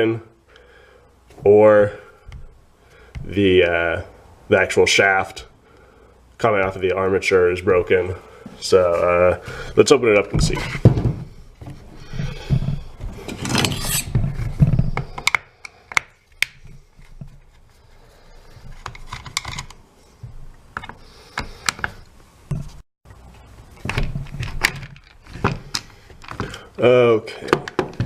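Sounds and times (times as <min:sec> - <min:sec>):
rubbing and rustling: 0:08.4 - 0:15.2.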